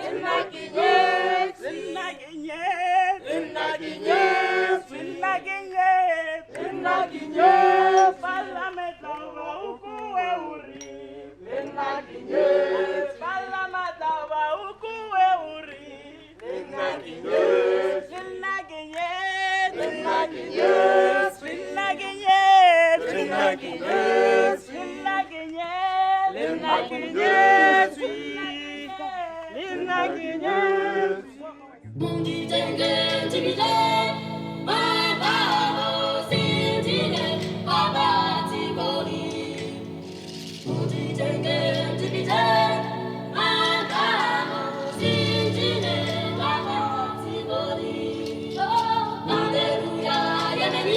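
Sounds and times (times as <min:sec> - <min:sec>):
unaccompanied singing voices: 0:00.0 - 0:50.9
choral music over low bass: 0:31.9 - 0:50.9.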